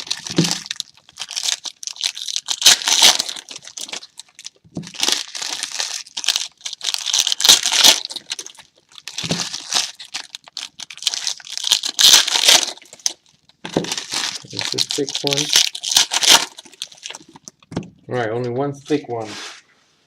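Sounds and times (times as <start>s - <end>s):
foil wrappers crinkling and tearing: 0.0s - 17.7s.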